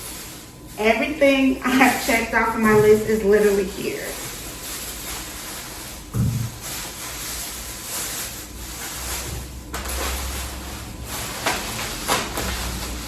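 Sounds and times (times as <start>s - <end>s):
groceries thumping down: 0.8s - 8.4s, 9.2s - 13.0s
packaging rustling: 1.6s - 13.0s
sharp knocks: 6.2s - 6.5s.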